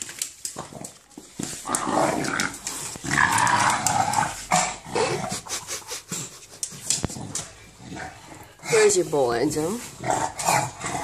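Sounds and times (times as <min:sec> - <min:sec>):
dog growling and grunting: 0:01.6 - 0:09.0, 0:09.8 - 0:11.0.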